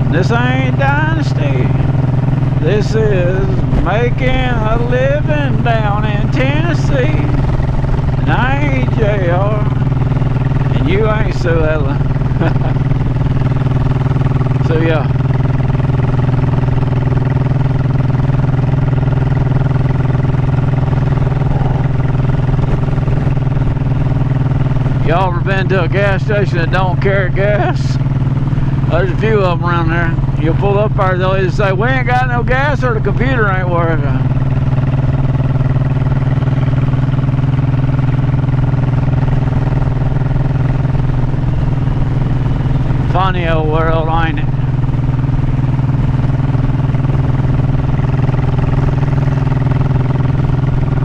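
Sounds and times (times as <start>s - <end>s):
motorcycle engine running: 0.0s - 51.0s.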